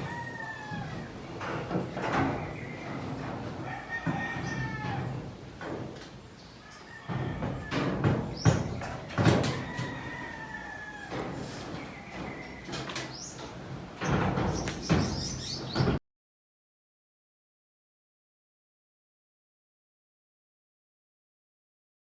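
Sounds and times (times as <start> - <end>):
sharp knocks and bangs: 7.1 - 10.2, 11.1 - 16.0.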